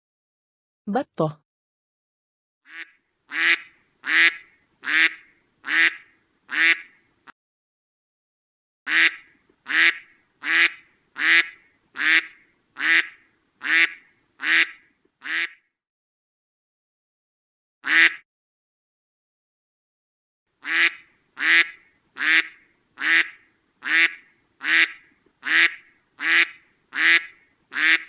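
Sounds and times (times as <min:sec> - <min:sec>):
duck quacking: 0:02.7 - 0:07.0, 0:08.9 - 0:15.6, 0:17.8 - 0:18.2, 0:20.6 - 0:28.0.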